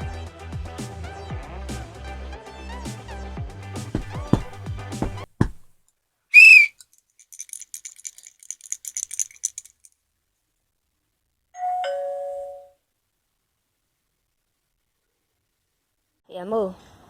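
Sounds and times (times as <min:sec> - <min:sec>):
high-pitched rattle: 0:06.4 - 0:09.9.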